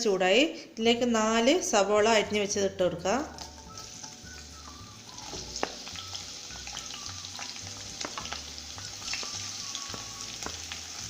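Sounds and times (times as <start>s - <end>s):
spoon stirring against pan: 3.3s - 4.4s
onions sizzling in oil: 3.3s - 11.0s.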